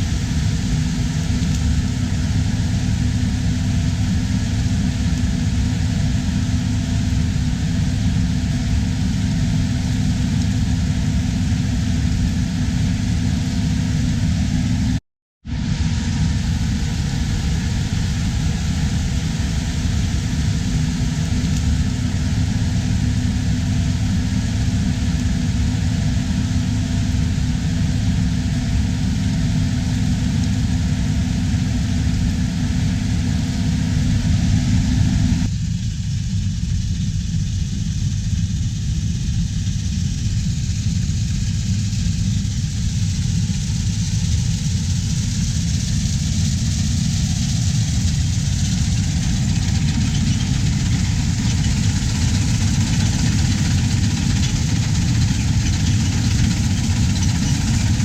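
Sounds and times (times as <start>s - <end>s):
machinery hum: 0.0s - 58.0s
diesel engine rumbling: 39.5s - 58.0s.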